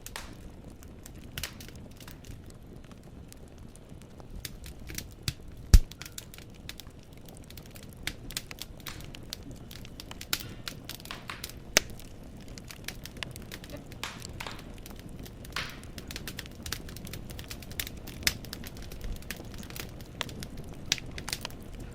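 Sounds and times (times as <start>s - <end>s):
loud fire pop: 0.0s - 0.6s, 5.6s - 6.2s, 10.3s - 12.0s, 13.6s - 14.9s, 15.5s - 16.2s
firewood crackling in fireplace: 0.0s - 21.9s.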